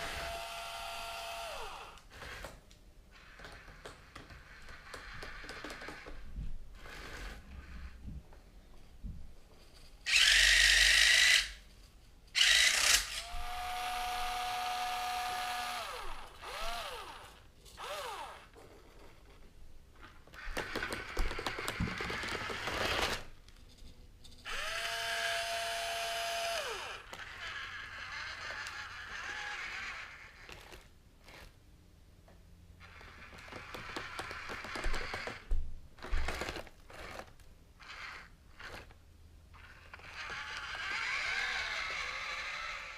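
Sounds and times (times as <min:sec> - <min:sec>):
electric gear motors whining: 0:10.1 - 0:11.6, 0:24.5 - 0:31.5, 0:39.5 - 0:42.9
loud whirring: 0:10.1 - 0:11.6, 0:12.4 - 0:18.5, 0:24.5 - 0:30.2, 0:39.6 - 0:42.9.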